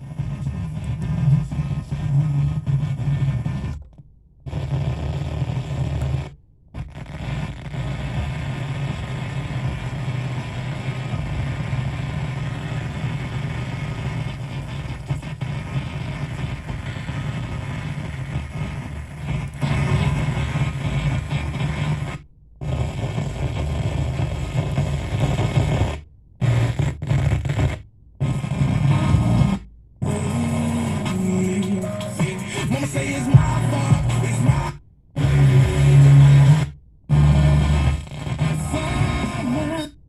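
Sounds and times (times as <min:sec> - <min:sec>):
distorted radio noise: 0:00.0 - 0:03.8, 0:04.5 - 0:40.0
heavy low hum: 0:04.4 - 0:26.8, 0:27.5 - 0:39.8.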